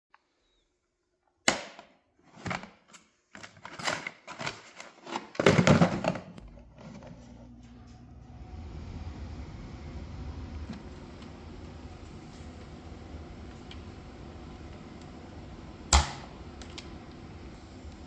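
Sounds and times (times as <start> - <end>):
steady low motor hum: 6.4 - 18.0.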